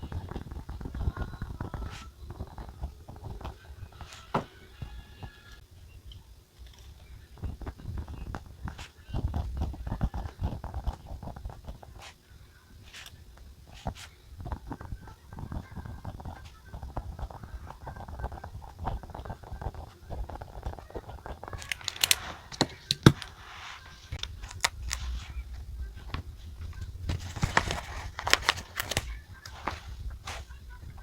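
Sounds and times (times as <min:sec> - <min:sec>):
paper rustling and crinkling: 0:12.8 - 0:31.0.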